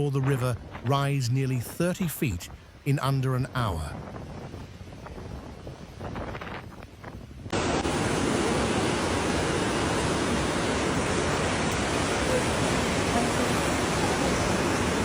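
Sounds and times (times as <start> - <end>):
floodwater roaring: 7.5 - 15.0.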